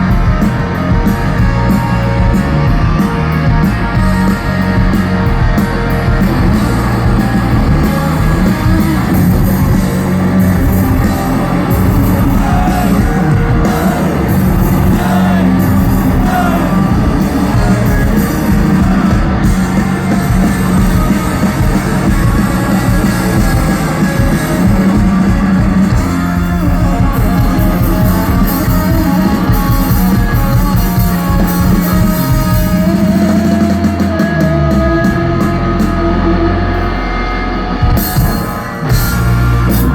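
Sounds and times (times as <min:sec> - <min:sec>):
distorted electric guitars: 0:00.0 - 0:39.9
drum kit: 0:00.0 - 0:39.9
person singing: 0:11.1 - 0:25.1.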